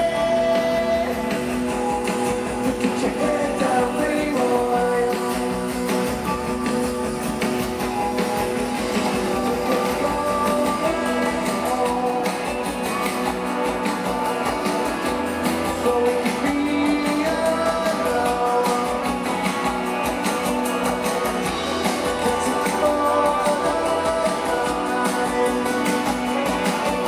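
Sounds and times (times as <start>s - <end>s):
live rock band with guitars: 0.0s - 27.0s.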